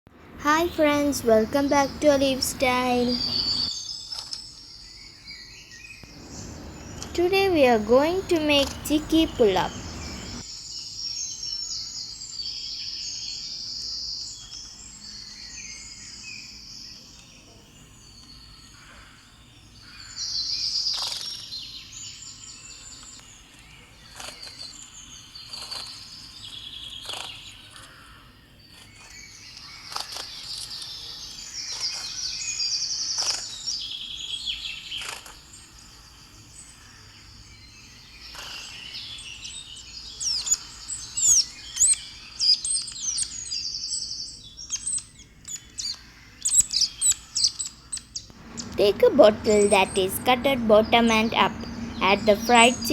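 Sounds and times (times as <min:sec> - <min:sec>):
steady background noise: 0:00.1 - 0:03.7, 0:06.1 - 0:10.4, 0:48.3 - 0:52.9
birds chirping and trilling: 0:00.5 - 0:04.0, 0:04.9 - 0:10.4, 0:36.5 - 0:52.9.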